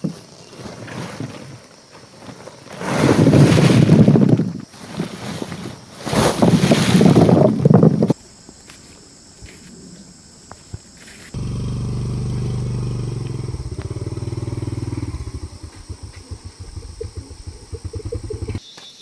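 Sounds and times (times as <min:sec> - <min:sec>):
small engine running: 0:11.3 - 0:18.6.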